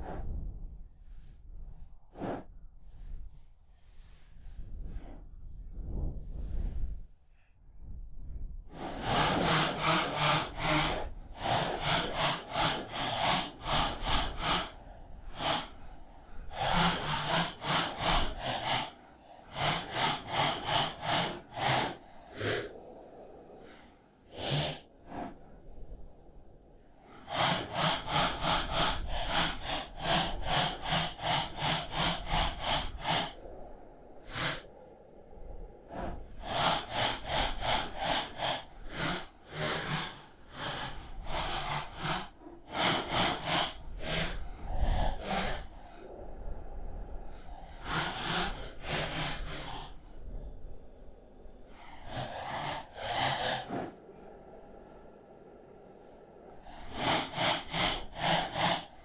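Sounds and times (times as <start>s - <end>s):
hand saw rasping through wood: 8.8s - 22.7s, 27.2s - 33.4s, 34.2s - 34.6s, 36.4s - 45.6s, 47.8s - 50.0s, 51.8s - 54.0s, 56.6s - 59.0s.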